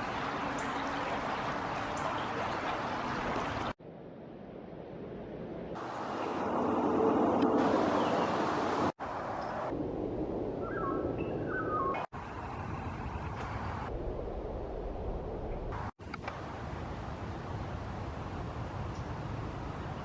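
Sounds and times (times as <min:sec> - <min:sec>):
rushing water: 0:00.0 - 0:03.8, 0:05.8 - 0:09.7.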